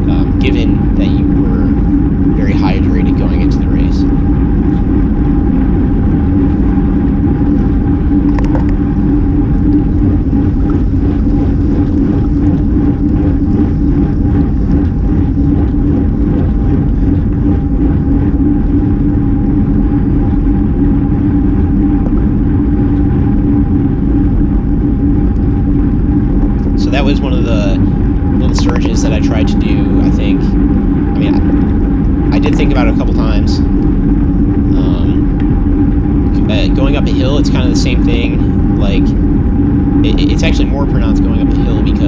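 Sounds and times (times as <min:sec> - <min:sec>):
road rumble: 0:00.0 - 0:42.0
wind rush: 0:00.0 - 0:42.0.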